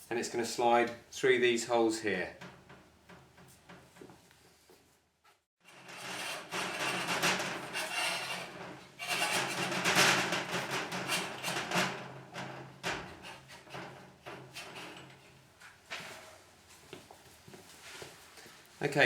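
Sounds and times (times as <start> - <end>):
metal bar scraping and knocking: 5.6 - 16.4.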